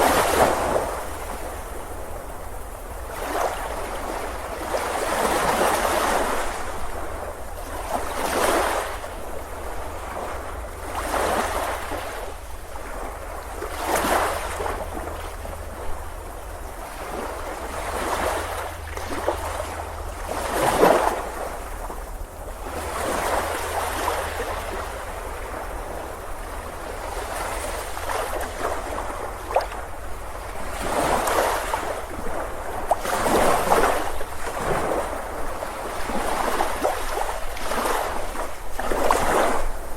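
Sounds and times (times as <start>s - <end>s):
ocean waves breaking: 0.0s - 39.9s
low steady rumble: 8.9s - 39.9s.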